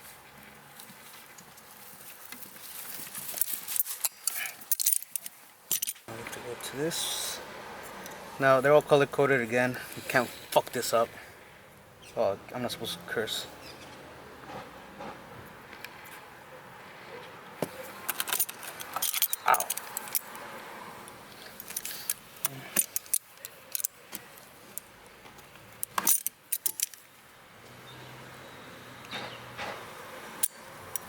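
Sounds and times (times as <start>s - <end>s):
small parts clicking and jingling: 2.3s - 6.1s, 17.8s - 20.4s, 21.1s - 27.2s, 30.3s - 31.0s.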